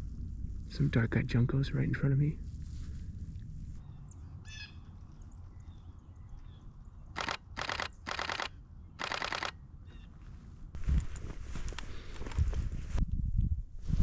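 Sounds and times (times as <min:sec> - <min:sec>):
steady low rumble: 0:00.0 - 0:14.0
camera shutter rapid clicks: 0:07.2 - 0:09.6.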